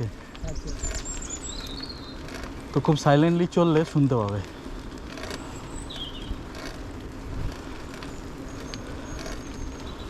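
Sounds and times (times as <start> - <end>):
bicycles rolling on a trail: 0.0 - 10.0
birds chirping and whistling: 0.4 - 2.6, 5.4 - 6.6, 7.7 - 10.0.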